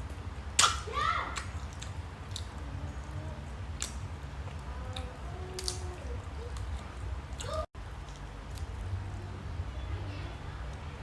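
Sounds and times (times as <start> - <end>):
chewing: 1.4 - 9.2.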